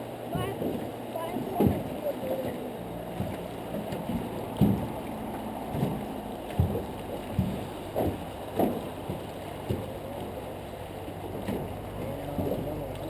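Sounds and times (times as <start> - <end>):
water lapping against boat hull: 0.0 - 13.0
soft knocks: 0.3 - 10.4.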